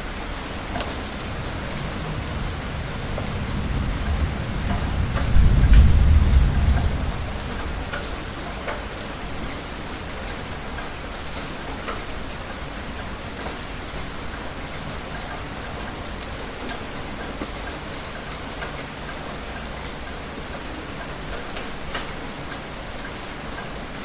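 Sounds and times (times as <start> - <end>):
low thunder rumble: 0.0 - 9.3
heavy rain: 0.0 - 24.0.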